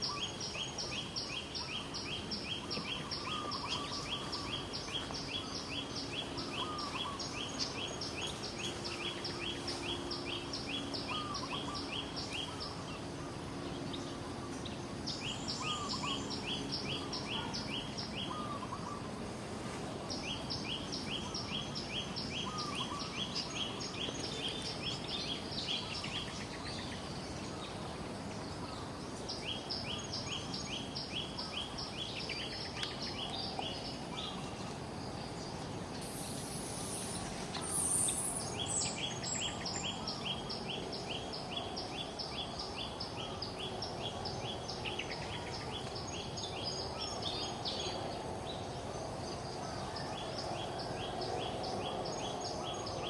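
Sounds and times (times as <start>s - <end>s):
outdoor background hiss: 0.0s - 53.0s
songbird singing: 0.0s - 53.0s.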